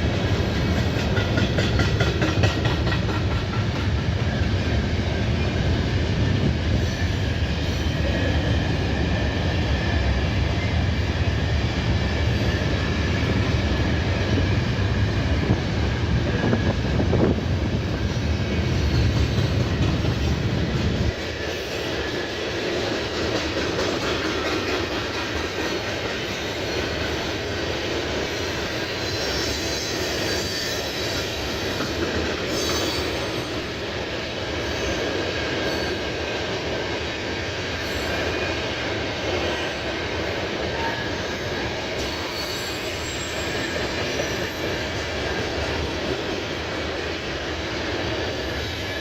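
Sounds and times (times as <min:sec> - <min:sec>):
freight train rumbling past: 0:00.0 - 0:49.0
faint wheel squeal: 0:42.0 - 0:44.9.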